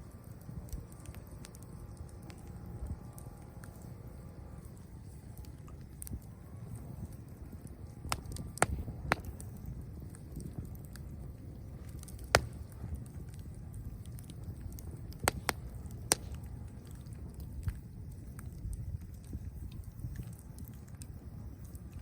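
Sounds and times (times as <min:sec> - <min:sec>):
campfire crackling and popping: 0:00.0 - 0:22.0
low steady rumble: 0:00.0 - 0:22.0.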